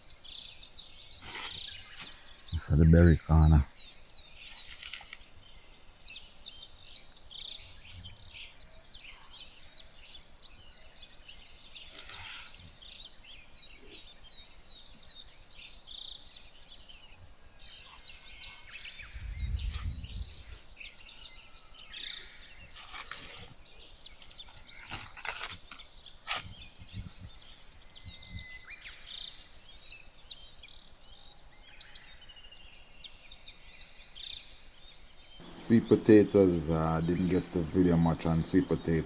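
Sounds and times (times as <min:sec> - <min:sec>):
birds chirping: 0:00.0 - 0:39.0
brief rustles: 0:01.2 - 0:02.2, 0:04.3 - 0:05.3, 0:11.9 - 0:12.7, 0:22.7 - 0:23.5, 0:24.2 - 0:27.3
low wind rumble: 0:19.0 - 0:20.9.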